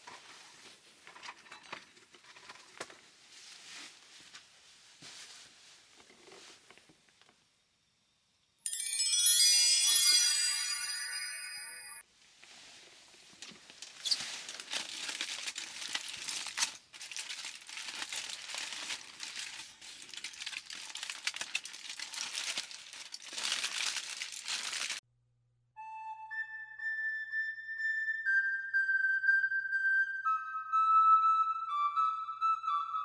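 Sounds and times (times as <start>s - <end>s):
flute music: 8.7s - 12.0s, 25.8s - 33.0s.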